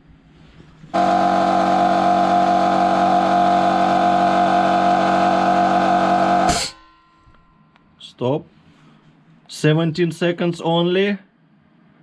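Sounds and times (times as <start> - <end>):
air compressor running: 0.9 - 6.8.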